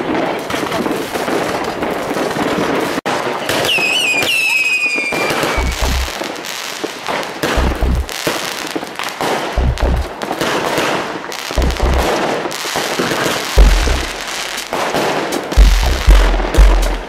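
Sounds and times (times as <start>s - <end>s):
fireworks crackling and popping: 0.0s - 17.0s
falling rocket whistle: 3.4s - 5.8s
deep low firework thuds: 5.5s - 6.2s, 7.4s - 8.1s, 9.6s - 10.2s, 11.6s - 12.2s, 13.6s - 17.0s.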